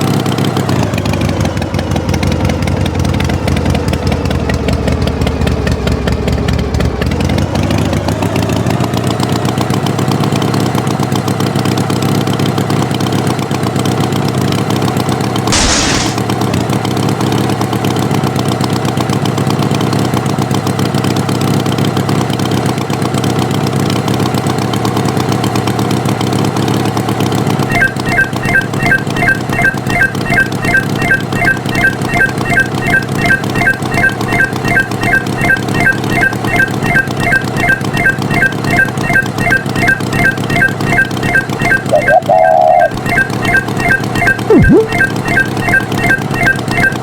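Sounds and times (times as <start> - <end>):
tractor engine running: 0.0 - 47.0
short burst of noise: 15.5 - 16.3.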